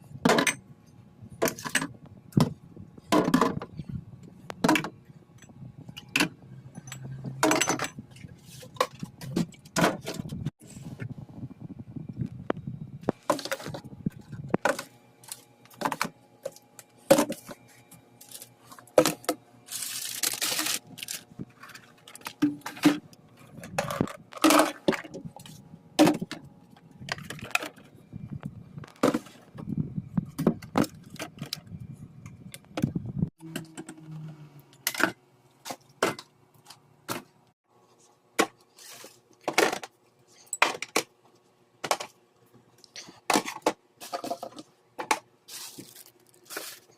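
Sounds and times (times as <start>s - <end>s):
dishes clinking and rattling: 4.6s - 8.2s.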